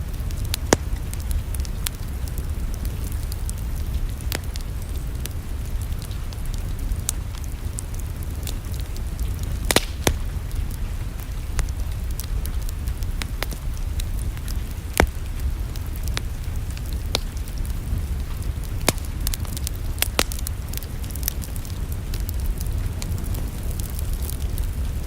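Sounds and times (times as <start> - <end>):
steady low rumble: 0.0 - 25.0
wood fire crackling and popping: 0.0 - 25.0.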